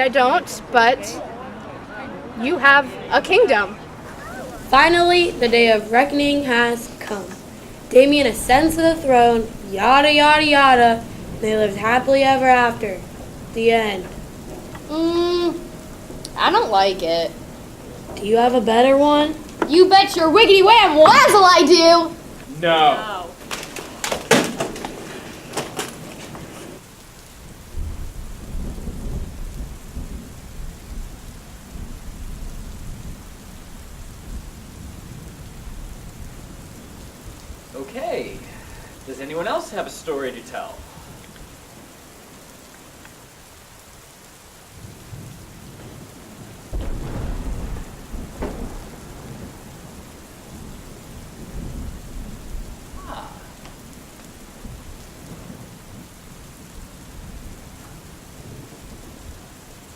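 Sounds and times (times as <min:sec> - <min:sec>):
steady rain: 0:00.0 - 0:59.9
thunder rumbling: 0:02.4 - 0:43.6, 0:44.6 - 0:59.9
thunder crack: 0:02.6 - 0:26.8, 0:27.7 - 0:37.5, 0:46.7 - 0:57.6.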